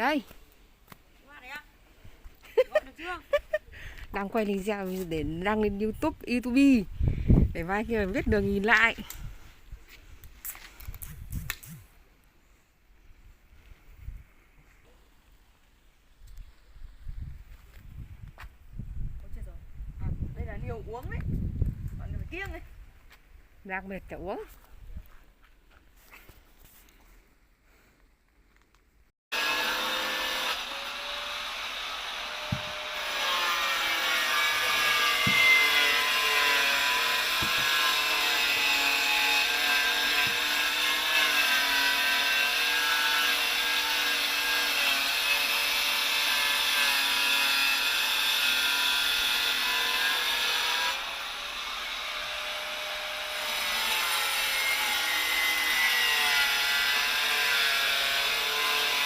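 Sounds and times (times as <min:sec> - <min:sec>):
power cutter cutting masonry: 0:29.3 - 0:59.0.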